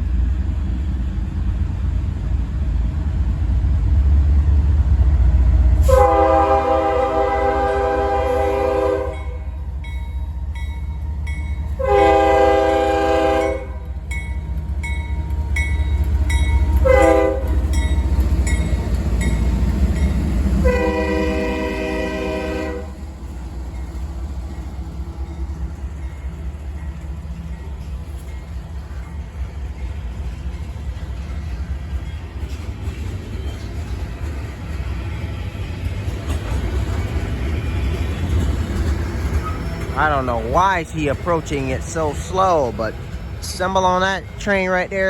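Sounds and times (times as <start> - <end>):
locomotive rumble: 0.0 - 45.0
locomotive horn blasts: 5.8 - 9.5, 11.8 - 13.9, 16.8 - 17.7, 20.6 - 23.0.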